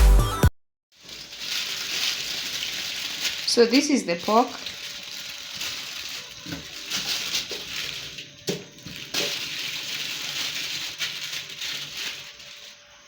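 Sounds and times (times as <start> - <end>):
running water splashing: 1.0 - 12.7.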